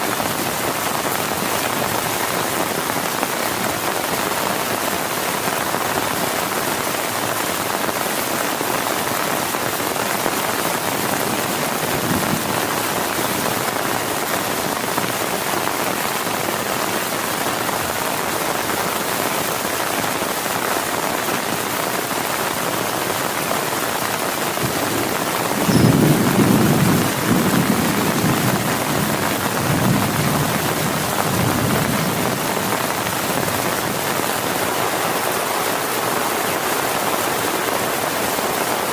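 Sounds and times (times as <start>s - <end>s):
heavy rain on a tent: 0.0s - 38.9s
low rumble of thunder: 11.3s - 13.4s, 24.6s - 33.6s.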